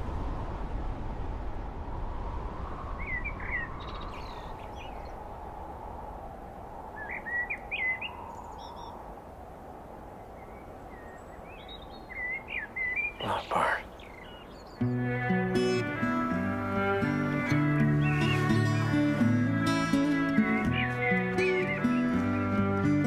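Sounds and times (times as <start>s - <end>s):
small songbirds chirping: 3.0s - 6.0s, 6.8s - 9.2s, 10.0s - 15.2s, 16.7s - 23.0s.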